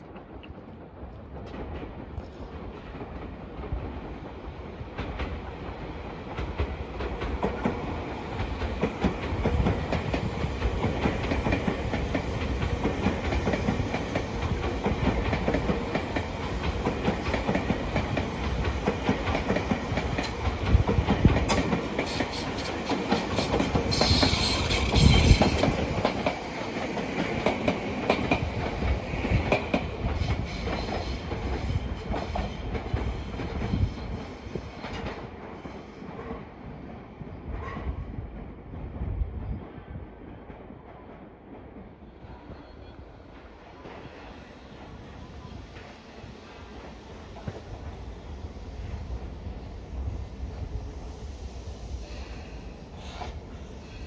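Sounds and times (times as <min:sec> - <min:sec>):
electric train wheels clicking: 0:06.3 - 0:33.7
brief high hiss: 0:23.9 - 0:25.7.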